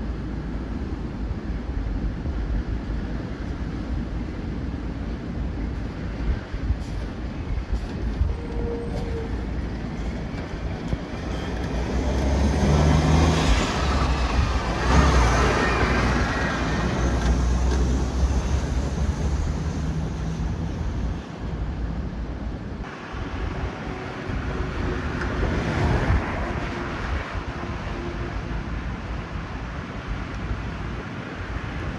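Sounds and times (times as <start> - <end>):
road traffic passing: 0.0 - 31.9
wind rumbling on microphone: 0.0 - 31.9
large vehicle engine drone: 10.4 - 31.9.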